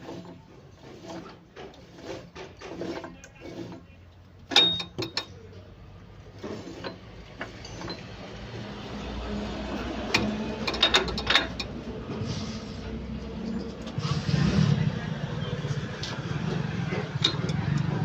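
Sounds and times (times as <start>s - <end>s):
gearbox parts clicking and rattling: 0.0s - 5.5s, 6.2s - 8.7s, 9.8s - 11.9s, 15.7s - 18.0s.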